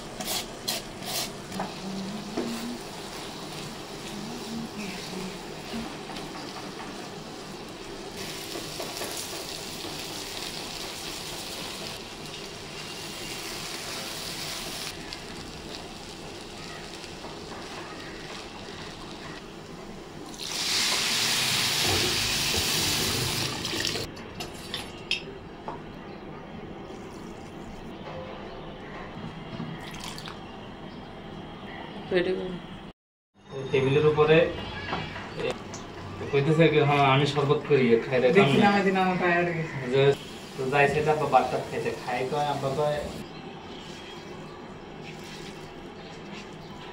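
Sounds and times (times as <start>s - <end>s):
food sizzling in a pan: 1.9s - 19.4s, 20.3s - 23.7s, 40.2s - 43.2s.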